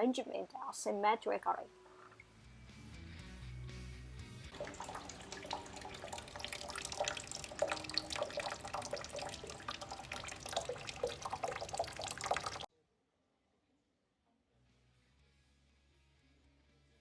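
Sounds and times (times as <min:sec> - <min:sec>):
low background music: 0:00.6 - 0:12.7
water trickling and dripping: 0:04.5 - 0:12.7.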